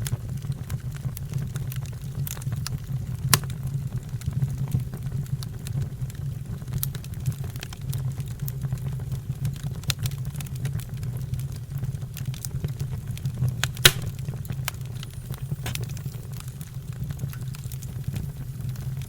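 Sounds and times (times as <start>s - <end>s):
fire crackling: 0.0s - 19.0s
fire burning: 0.1s - 19.0s
loud pop: 13.8s - 14.4s.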